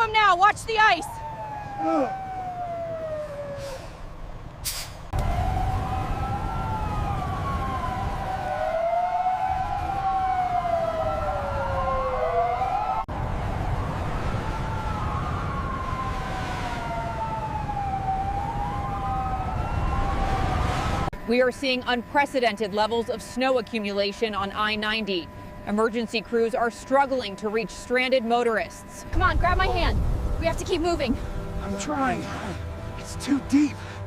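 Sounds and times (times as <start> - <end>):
emergency vehicle siren wailing: 0.0 - 34.0
steady low rumble: 21.0 - 33.6.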